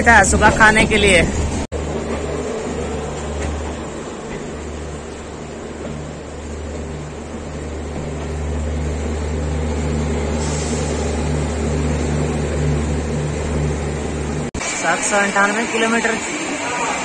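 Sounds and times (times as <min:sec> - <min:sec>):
train engine drone: 0:00.0 - 0:17.0
pulsing hum: 0:01.4 - 0:14.5.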